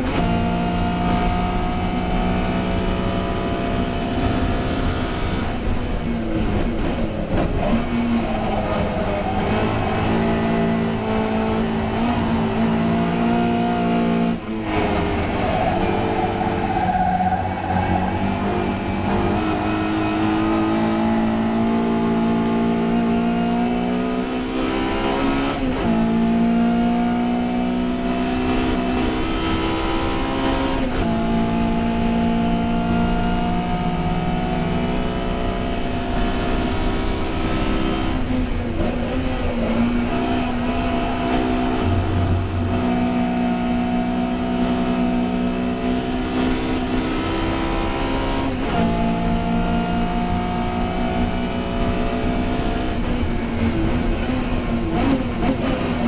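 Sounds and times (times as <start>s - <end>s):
race car engine accelerating: 0.0s - 56.0s.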